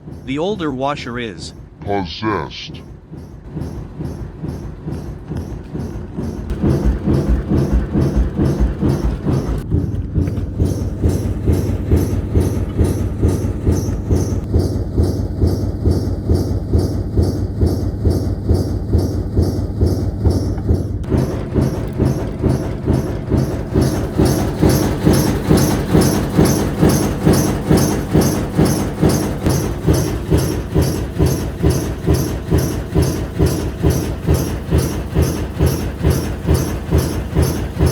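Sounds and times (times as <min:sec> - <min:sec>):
washing machine motor hum: 0:00.0 - 0:37.9
washing machine drum banging: 0:03.3 - 0:14.5, 0:20.2 - 0:37.9.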